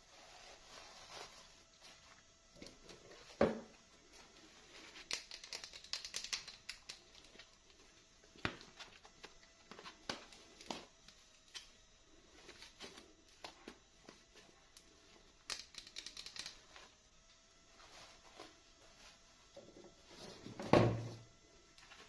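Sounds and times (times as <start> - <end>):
plastic packaging clicks and crinkling: 4.8 - 11.7.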